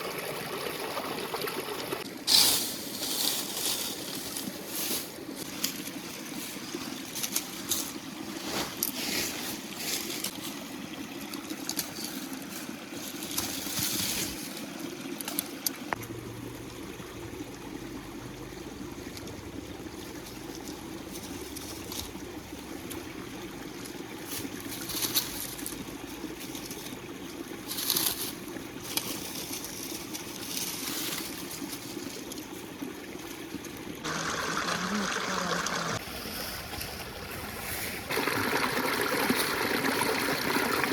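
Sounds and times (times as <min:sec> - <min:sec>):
river flowing: 0:00.0 - 0:40.9.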